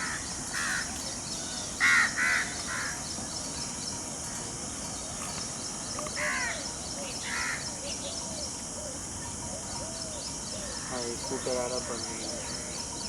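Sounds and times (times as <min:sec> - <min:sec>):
crow cawing: 0:00.0 - 0:00.9, 0:01.8 - 0:03.0, 0:06.2 - 0:06.6, 0:07.2 - 0:07.6.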